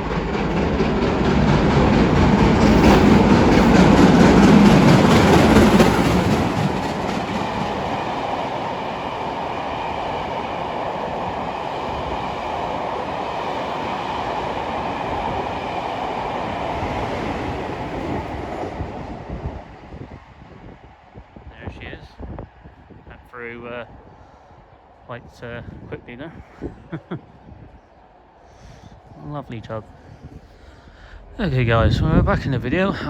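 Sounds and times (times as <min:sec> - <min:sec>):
train wheels rolling on rails: 0:00.0 - 0:21.3
steam train passing: 0:00.0 - 0:33.0.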